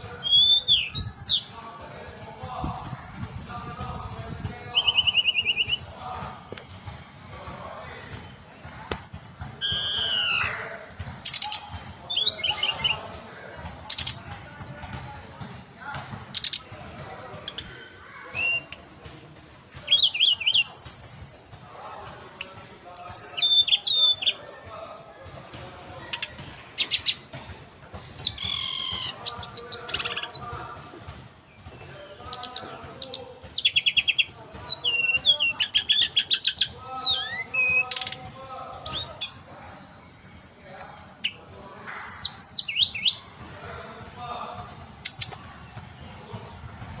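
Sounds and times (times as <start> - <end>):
bird singing: 0.0 - 1.6, 4.0 - 13.2, 17.4 - 21.3, 23.0 - 24.7, 26.0 - 30.5, 31.4 - 43.4.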